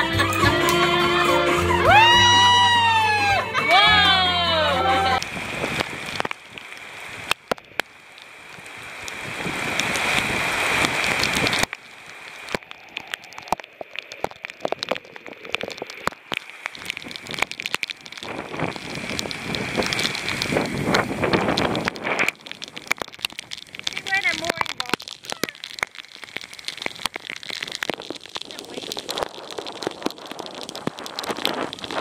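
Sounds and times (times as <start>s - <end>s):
rain hissing with drop impacts: 0.0s - 32.0s
uneven rain patter: 0.0s - 32.0s.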